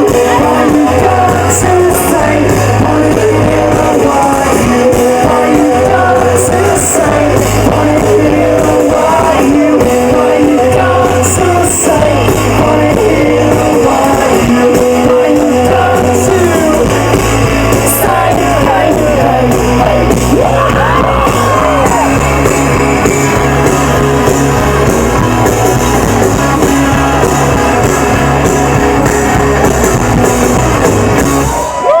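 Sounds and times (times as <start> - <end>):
person singing: 0.0 - 24.9
live rock band: 0.0 - 32.0.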